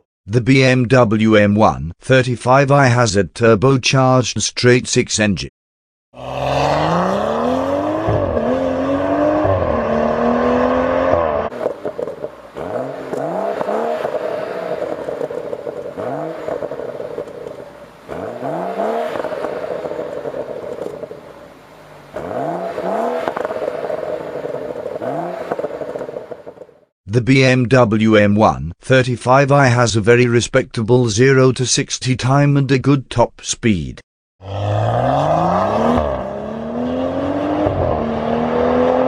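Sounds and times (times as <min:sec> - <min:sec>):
car engine revving: 0:06.2 - 0:26.8, 0:34.4 - 0:39.0
exhaust crackle: 0:06.2 - 0:26.9.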